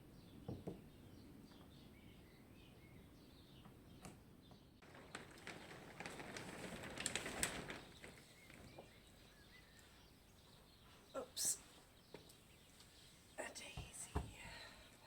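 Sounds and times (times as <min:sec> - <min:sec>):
rustling and clicking: 0:04.0 - 0:10.0
faint bird chirps: 0:08.0 - 0:15.0.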